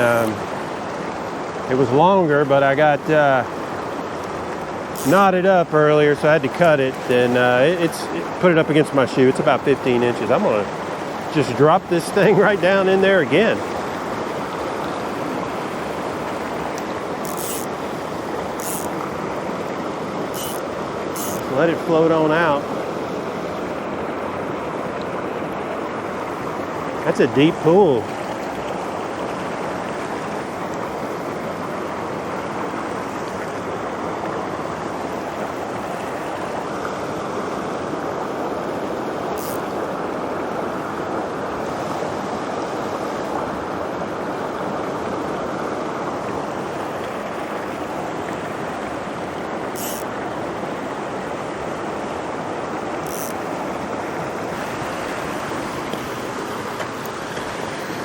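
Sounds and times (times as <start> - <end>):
stream water rushing: 0.0 - 58.0
faint high ticks: 16.7 - 17.8, 18.6 - 19.1, 20.3 - 20.6, 21.2 - 21.5, 39.4 - 39.8, 49.8 - 50.1, 53.0 - 53.4.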